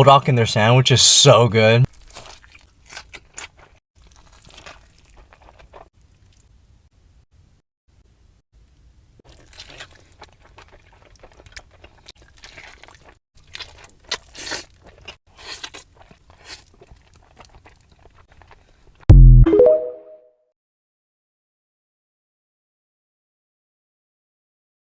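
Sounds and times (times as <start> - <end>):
crunchy food being chewed: 1.9 - 6.6, 9.3 - 19.1.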